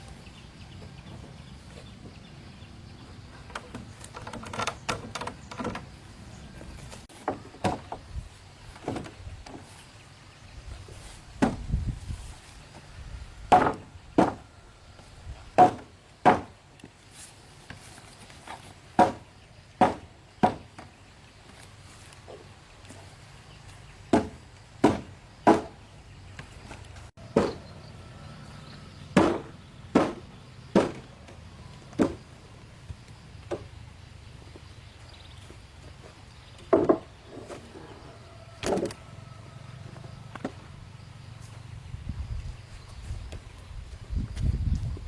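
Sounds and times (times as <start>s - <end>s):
tool striking wood: 13.5s - 14.4s, 15.6s - 16.5s, 19.0s - 20.8s, 24.1s - 25.8s, 27.4s - 27.6s, 29.2s - 31.1s.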